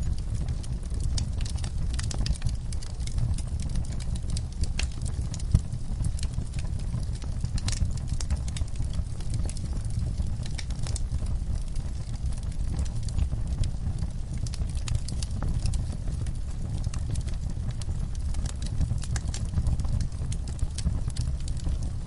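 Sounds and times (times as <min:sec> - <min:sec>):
low rumble of flames: 0:00.0 - 0:22.0
wood fire crackling and popping: 0:00.0 - 0:22.0.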